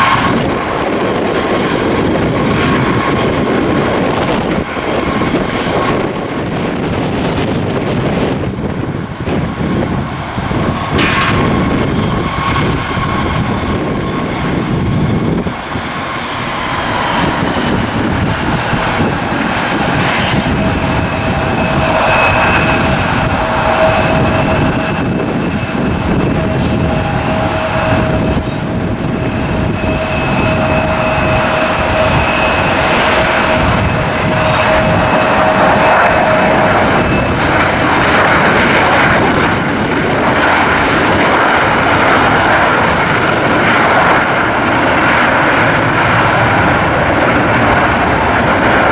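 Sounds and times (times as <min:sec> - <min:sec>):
jet engines roaring: 0:00.0 - 0:48.9
thin whining tones: 0:12.0 - 0:38.1.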